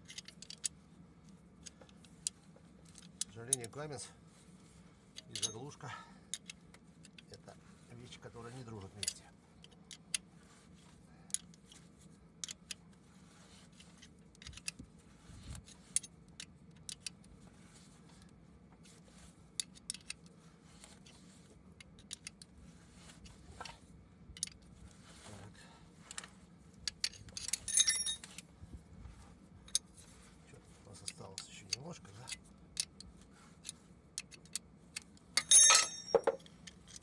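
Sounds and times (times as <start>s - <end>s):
hand tools clicking on metal: 5.2s - 5.7s, 31.0s - 37.0s
ringing metal clinks: 27.7s - 28.3s, 35.4s - 37.0s.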